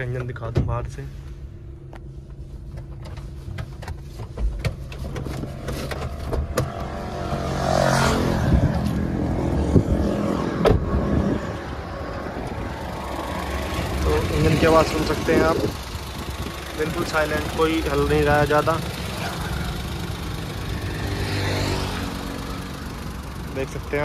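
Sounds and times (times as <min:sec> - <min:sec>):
car engine idling: 0:00.0 - 0:24.0
clicks and knocks from car: 0:02.7 - 0:07.0.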